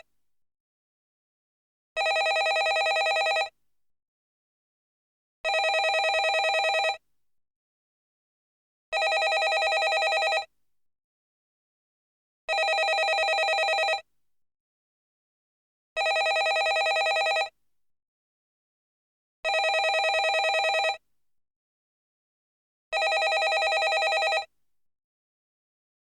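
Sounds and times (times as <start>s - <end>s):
telephone bell ringing: 2.0s - 3.5s, 5.5s - 7.0s, 9.0s - 10.5s, 12.5s - 14.0s, 16.0s - 17.5s, 19.5s - 21.0s, 23.0s - 24.5s.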